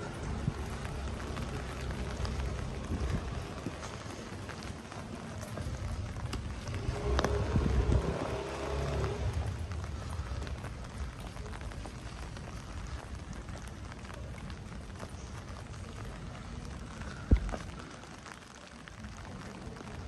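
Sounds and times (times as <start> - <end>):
low rumble with faint hum: 0.0 - 17.9
steady rain falling: 0.0 - 20.0.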